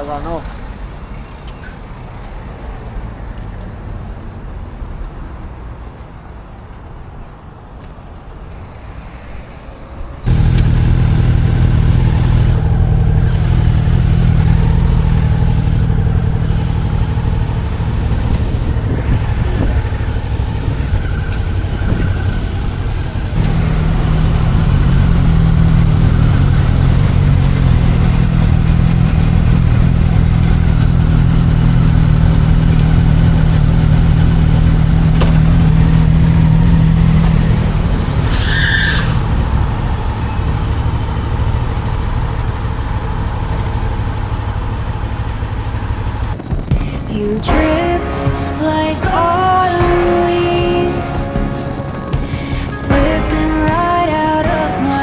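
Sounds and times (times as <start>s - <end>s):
motorcycle engine running: 10.3s - 38.1s, 39.2s - 55.0s.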